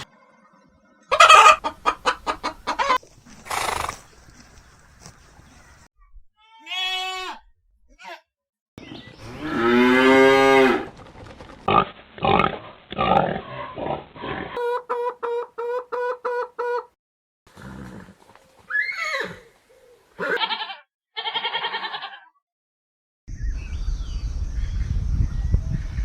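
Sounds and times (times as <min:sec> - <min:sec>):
farm animal calls: 0:01.1 - 0:05.1
animal grunting: 0:03.4 - 0:04.1, 0:11.7 - 0:14.6.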